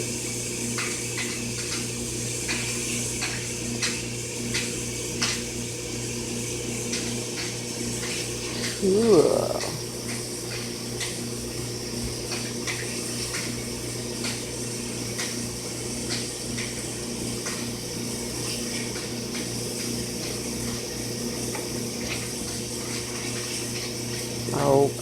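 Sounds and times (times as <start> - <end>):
cleaning machine humming: 0.0 - 25.0.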